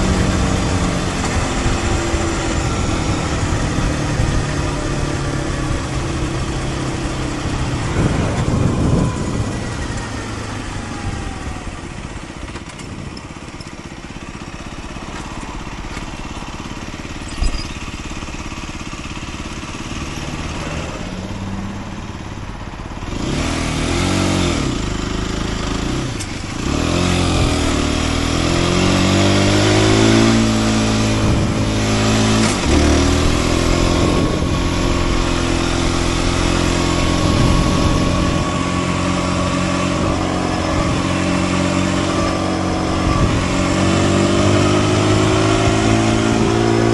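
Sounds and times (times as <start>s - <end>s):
wind rush: 0.0s - 12.2s, 28.8s - 46.9s
motorcycle engine revving: 0.0s - 46.9s.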